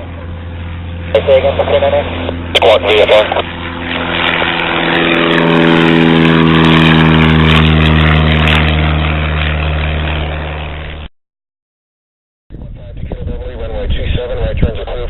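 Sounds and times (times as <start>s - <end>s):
propeller airplane engine droning: 0.0s - 11.1s, 12.5s - 15.0s.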